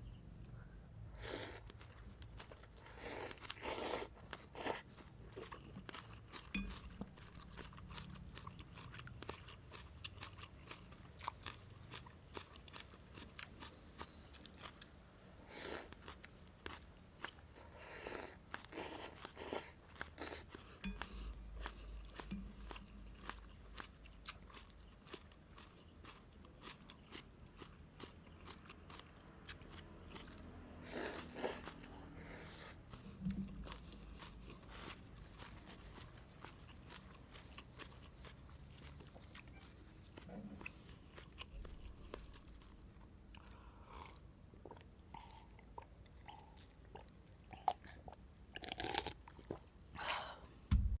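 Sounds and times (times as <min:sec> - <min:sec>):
chewing clicks: 0:32.6 - 0:49.6.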